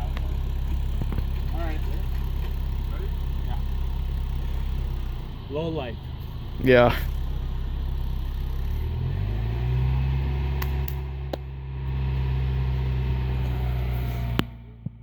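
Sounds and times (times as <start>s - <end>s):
vehicle engine idling: 0.0s - 15.0s
sharp clicks: 10.5s - 11.5s.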